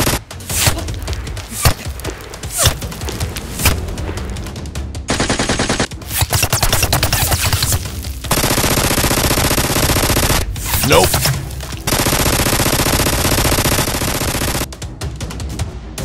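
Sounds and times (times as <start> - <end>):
automatic gunfire: 0.0 - 0.2, 5.1 - 11.1, 11.9 - 14.7.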